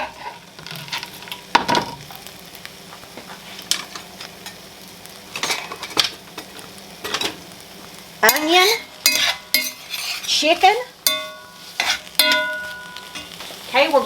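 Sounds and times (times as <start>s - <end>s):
utensil scraping a pan: 0.0s - 1.5s, 8.3s - 13.6s
garlic sizzling in a frying pan: 0.0s - 14.0s.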